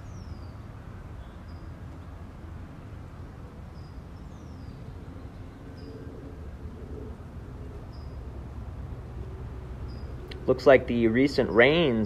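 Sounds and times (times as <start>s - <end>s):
steady low rumble: 1.9s - 12.0s
small bird chirping: 9.8s - 10.4s.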